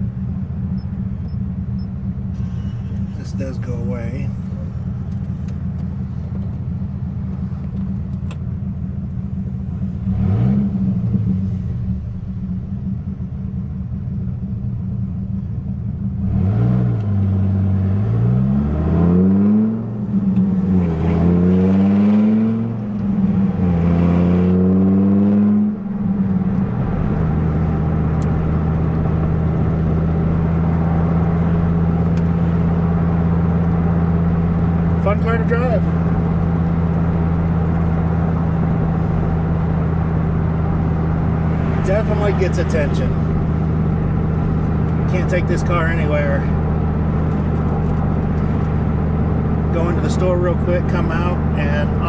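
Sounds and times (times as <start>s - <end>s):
car engine revving and shifting: 9.6s - 12.9s, 16.0s - 52.0s.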